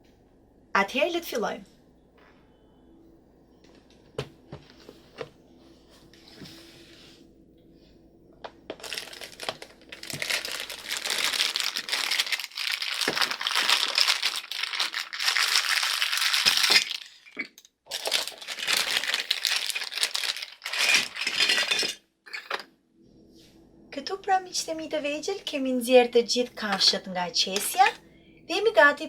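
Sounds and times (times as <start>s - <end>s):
plastic bag crinkling: 8.7s - 22.0s, 27.5s - 28.0s.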